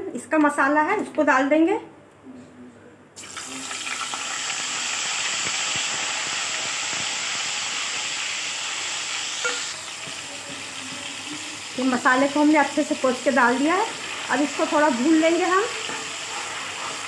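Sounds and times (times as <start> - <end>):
paste sizzling in hot oil: 3.2 - 17.0
steel spoon scraping: 15.2 - 17.0.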